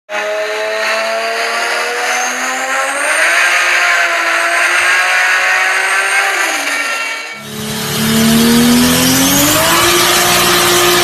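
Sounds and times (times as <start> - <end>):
car engine accelerating hard: 0.1 - 11.0
loud rushing noise: 0.9 - 11.0
faint high whine: 6.8 - 11.0.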